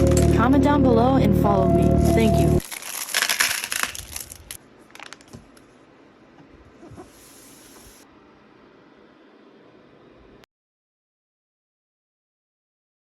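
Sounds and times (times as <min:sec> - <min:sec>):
crackling rustle with clicks: 0:02.6 - 0:05.7.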